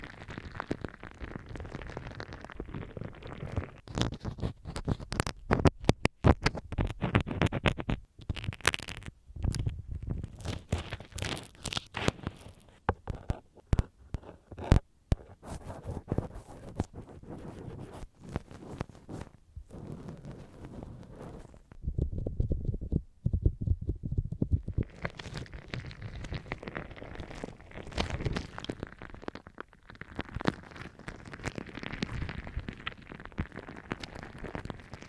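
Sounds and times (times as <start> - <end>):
rubbing and scratching: 1.6 - 35.0
ear cleaning clicks and crackles: 2.2 - 35.0.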